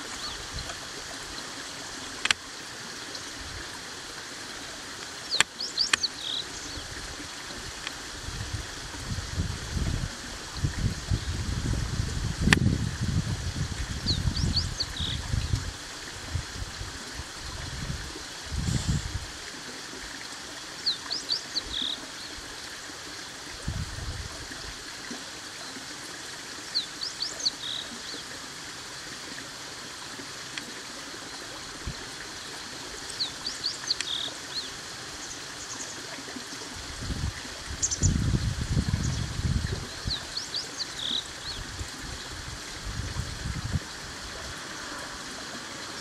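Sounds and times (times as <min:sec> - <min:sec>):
steady rushing hiss: 0:00.0 - 0:46.0.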